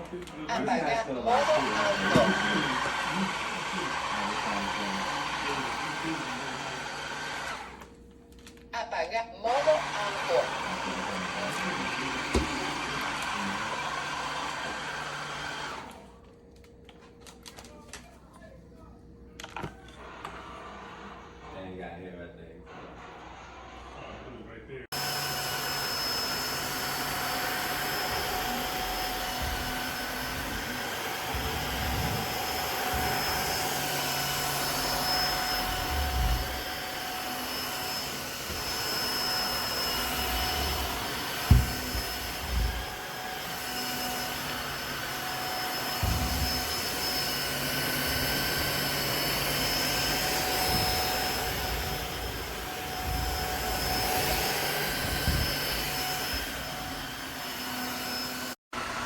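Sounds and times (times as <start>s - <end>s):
vacuum cleaner motor whine: 0.0s - 8.0s, 9.4s - 16.4s, 19.4s - 59.0s
short thumps: 40.1s - 43.0s, 46.0s - 46.9s.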